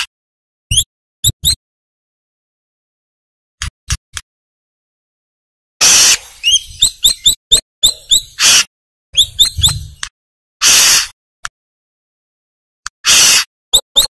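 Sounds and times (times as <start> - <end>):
bird chirping and rasping: 0.7 - 1.6, 5.8 - 11.2, 13.0 - 14.0.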